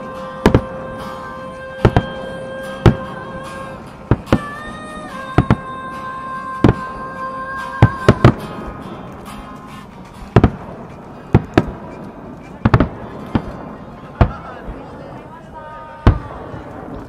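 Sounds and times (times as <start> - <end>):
music holding a long note: 0.0 - 17.0
firework shells bursting: 1.8 - 5.7, 7.8 - 15.2.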